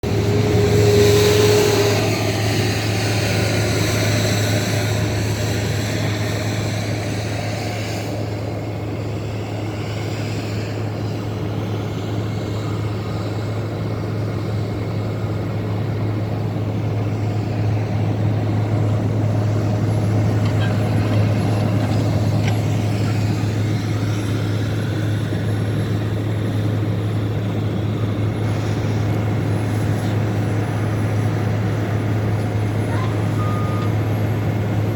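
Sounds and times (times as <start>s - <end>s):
diesel engines droning: 0.0s - 34.9s.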